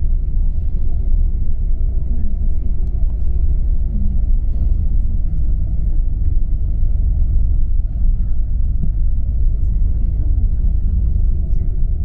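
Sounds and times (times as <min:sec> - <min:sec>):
bus engine rumble: 0:00.0 - 0:12.0
tyres on the road: 0:00.0 - 0:12.0.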